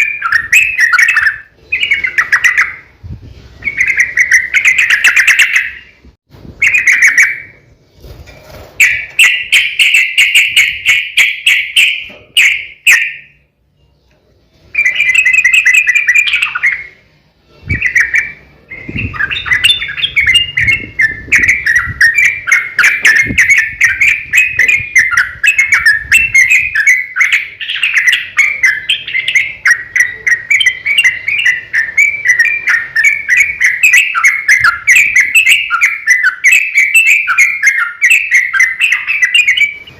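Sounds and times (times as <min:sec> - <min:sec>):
bulbul singing fast chattering notes: 0:17.7 - 0:39.9.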